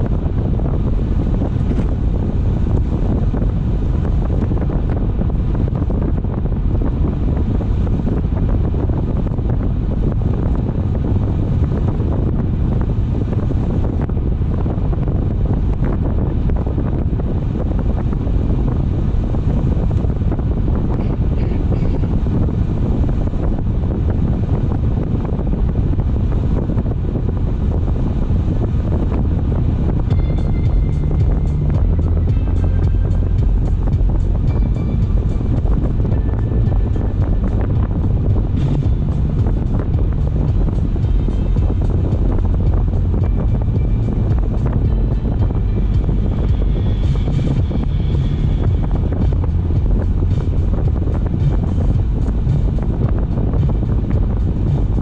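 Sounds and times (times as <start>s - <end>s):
car road noise rumble: 0.0s - 55.0s
wind buffeting microphone: 0.0s - 55.0s.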